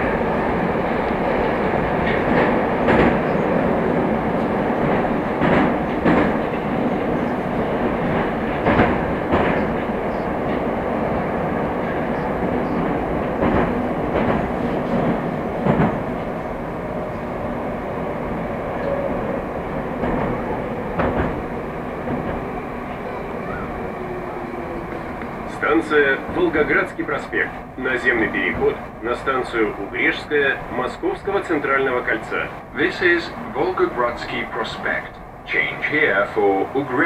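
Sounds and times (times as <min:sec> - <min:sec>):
clickety-clack of rail joints: 0:00.0 - 0:37.0
train wheels and motors rumbling: 0:00.0 - 0:37.0.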